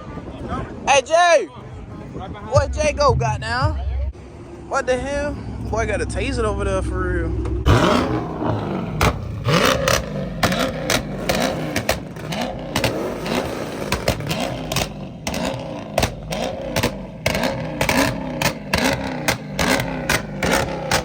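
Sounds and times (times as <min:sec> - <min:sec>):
car engine revving: 0:02.5 - 0:21.0
exhaust cracks and pops: 0:07.4 - 0:21.0.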